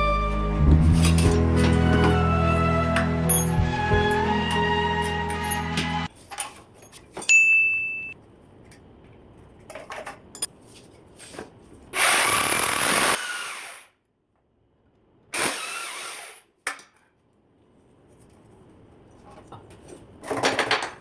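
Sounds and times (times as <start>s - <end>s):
power drill running: 12.0s - 14.0s, 15.4s - 16.5s.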